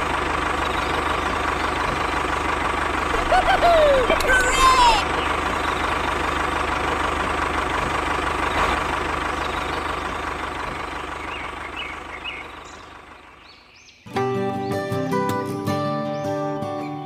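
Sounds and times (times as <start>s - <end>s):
tractor engine throbbing: 0.0s - 13.6s.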